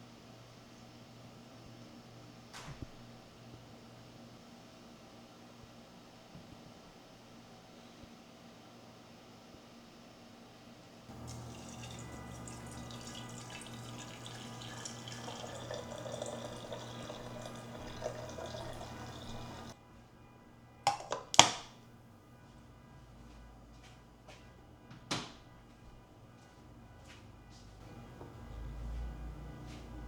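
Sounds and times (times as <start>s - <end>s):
tap running into sink: 11.1s - 19.7s.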